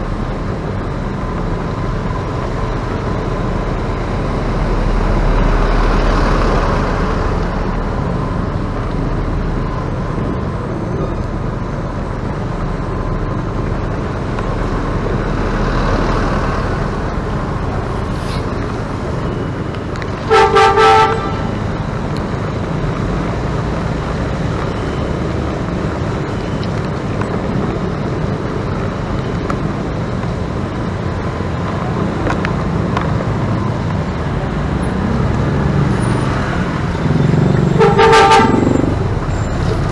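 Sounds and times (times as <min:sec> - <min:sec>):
traffic road noise: 0:00.0 - 0:39.9
vehicle horn toots: 0:20.2 - 0:21.5, 0:37.7 - 0:39.0.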